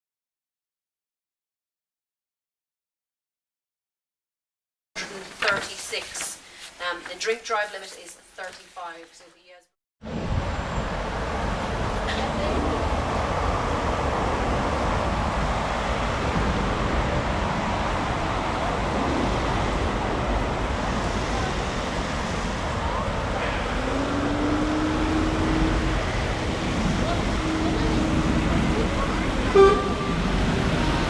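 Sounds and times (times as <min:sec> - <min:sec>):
road traffic passing: 0:10.1 - 0:31.0.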